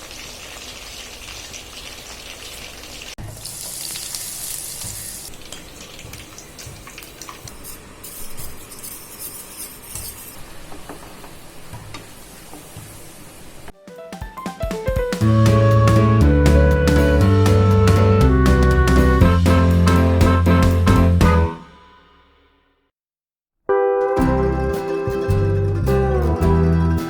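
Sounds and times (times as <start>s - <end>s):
food sizzling in hot oil: 0.0s - 9.1s.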